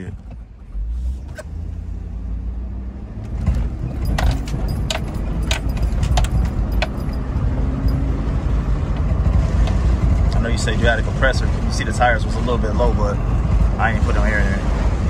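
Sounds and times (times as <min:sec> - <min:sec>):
truck engine and road noise: 0:00.0 - 0:15.0
metallic clicks and jingles: 0:03.5 - 0:08.2.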